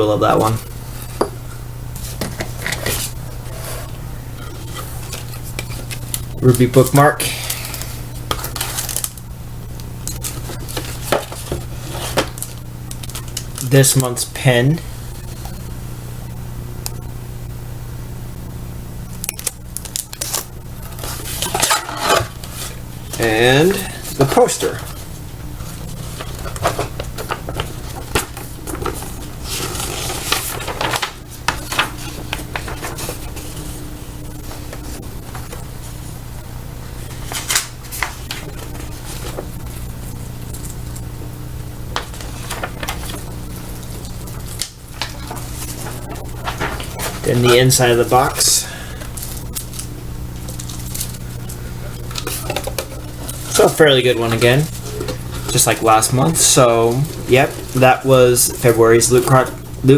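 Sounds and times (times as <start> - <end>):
steady low hum: 0.0 - 59.9
packaging rustles and taps: 26.1 - 33.4
pen clicks and packaging rustling: 43.9 - 59.6.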